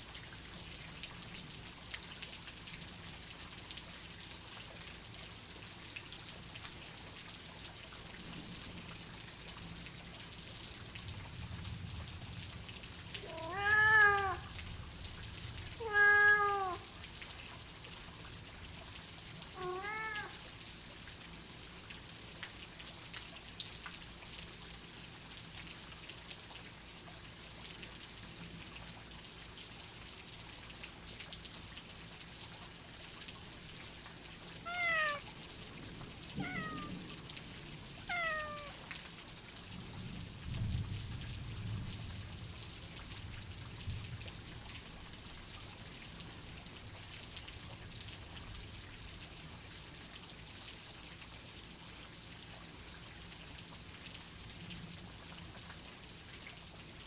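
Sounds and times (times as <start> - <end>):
rain hiss: 0.0 - 57.0
cat meowing: 13.2 - 14.5, 15.8 - 16.9, 19.6 - 20.4, 34.6 - 35.3, 36.4 - 37.0, 38.0 - 38.8.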